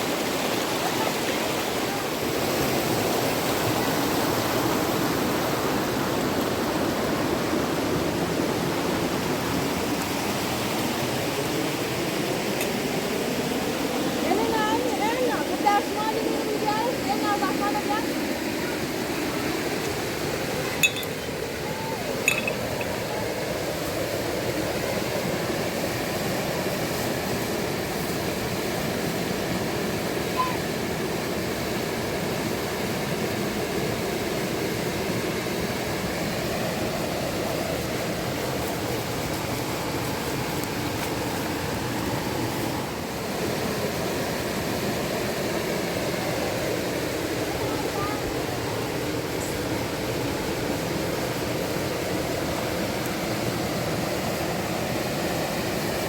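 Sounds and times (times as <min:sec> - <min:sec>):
river water rushing: 0:00.0 - 0:56.0
short clinks: 0:20.8 - 0:21.2, 0:22.2 - 0:22.9.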